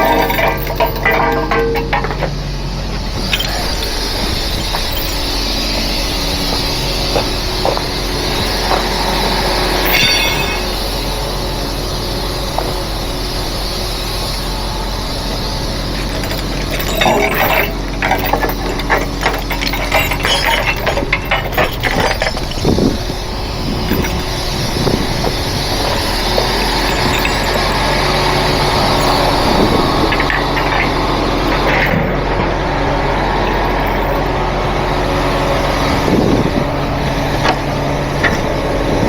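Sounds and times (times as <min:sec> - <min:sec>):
metal chains rattling and clanking: 0:00.0 - 0:11.2, 0:15.1 - 0:32.4, 0:33.2 - 0:34.8
truck engine running: 0:00.0 - 0:39.0.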